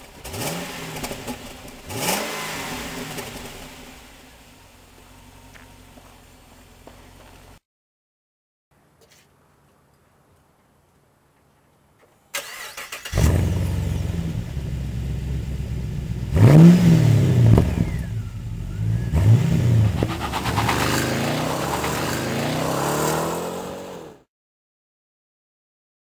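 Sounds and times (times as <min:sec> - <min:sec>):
car engine idling and revving: 0:00.0 - 0:07.6, 0:13.1 - 0:24.2
car starter cranking: 0:12.4 - 0:13.5.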